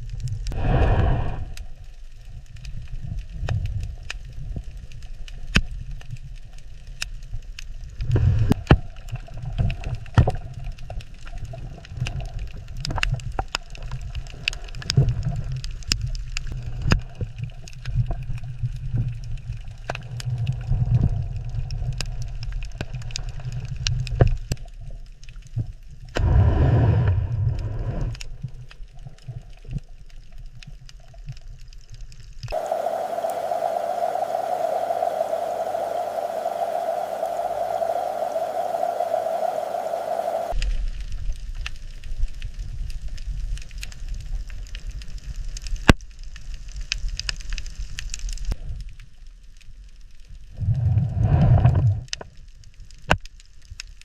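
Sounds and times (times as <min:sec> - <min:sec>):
underwater rumble: 0:00.0 - 0:54.0
water gurgling surges: 0:32.5 - 0:40.6.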